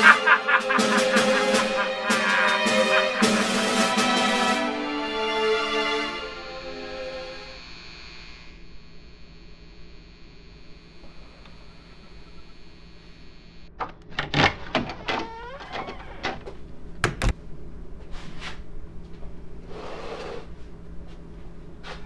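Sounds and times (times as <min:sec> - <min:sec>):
door creaking open: 0:14.1 - 0:17.4.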